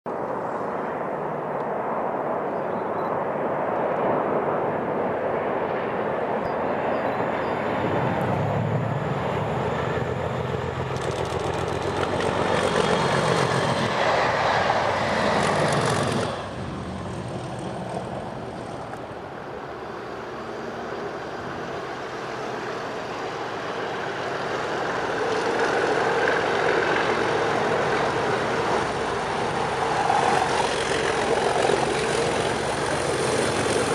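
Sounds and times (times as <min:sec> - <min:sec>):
diesel locomotive engines: 0:04.2 - 0:33.9.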